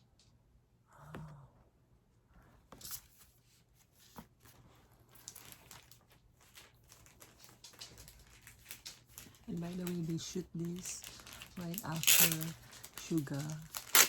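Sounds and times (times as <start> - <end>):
paper cards rustling and tapping: 4.0 - 14.0.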